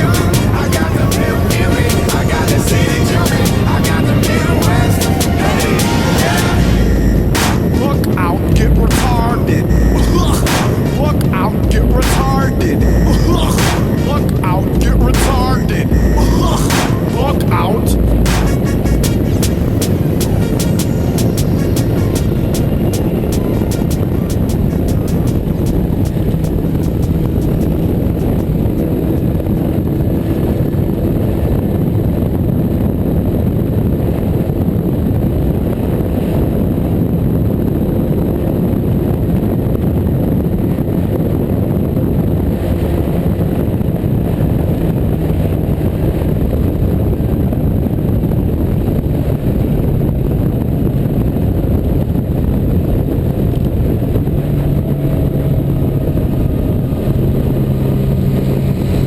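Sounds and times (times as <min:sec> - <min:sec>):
motorcycle engine humming: 0:00.0 - 0:31.0
wind rushing on microphone: 0:00.0 - 0:59.0.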